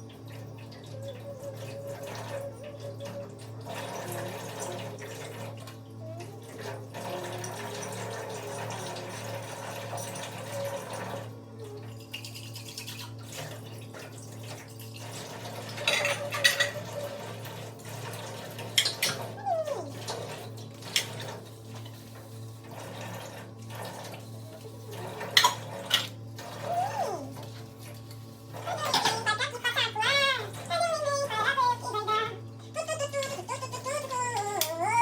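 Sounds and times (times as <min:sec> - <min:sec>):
water running from tap: 0:00.0 - 0:35.0
dishes and cutlery clinking: 0:15.8 - 0:17.0.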